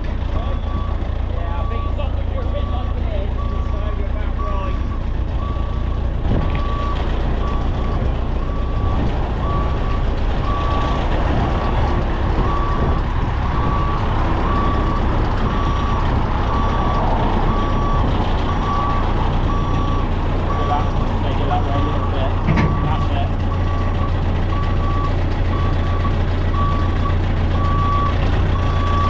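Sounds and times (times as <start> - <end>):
diesel engine running: 0.0 - 29.0
reversing alarm beeping: 0.6 - 6.0, 12.4 - 29.0.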